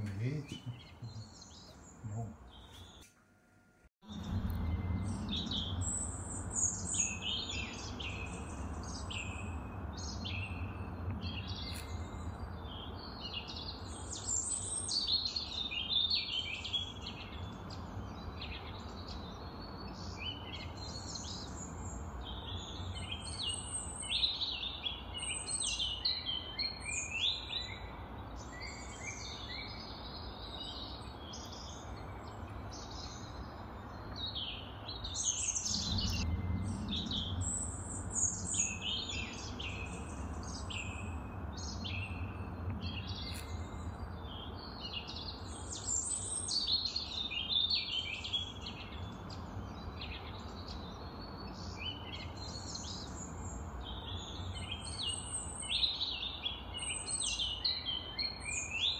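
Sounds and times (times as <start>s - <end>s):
small birds chirping and singing: 0.0s - 3.1s, 4.0s - 58.9s
steady low rumble: 4.0s - 12.9s, 35.4s - 45.3s.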